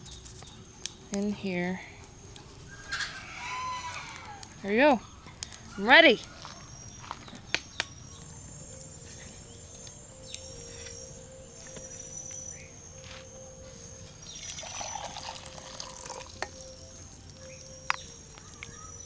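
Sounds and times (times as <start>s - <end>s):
campfire crackles: 0.0s - 19.0s
insects chirring: 0.0s - 19.0s
hot water being poured: 14.2s - 16.9s.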